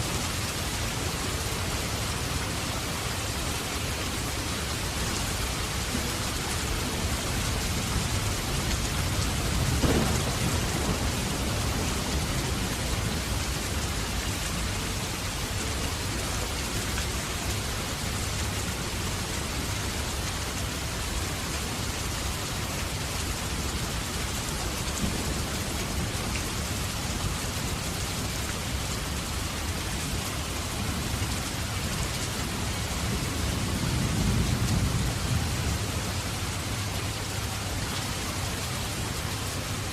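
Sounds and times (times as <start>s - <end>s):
heavy rain falling: 0.0s - 39.9s
thunder rumble: 7.0s - 15.1s.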